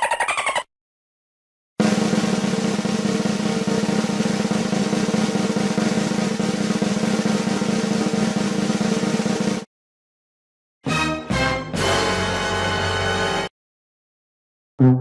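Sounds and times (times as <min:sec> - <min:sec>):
snare drum roll: 0:01.8 - 0:09.7.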